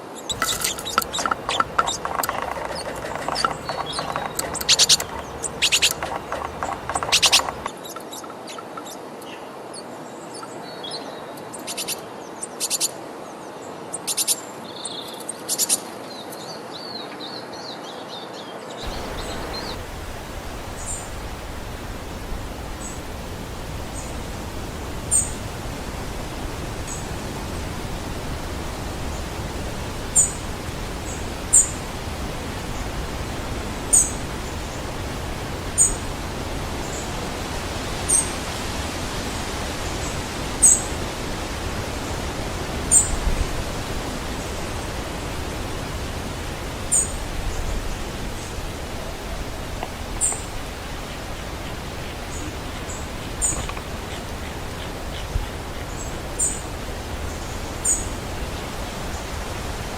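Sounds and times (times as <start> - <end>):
steady rushing noise: 0.3 - 7.7
high-pitched bird chirps: 0.3 - 8.7.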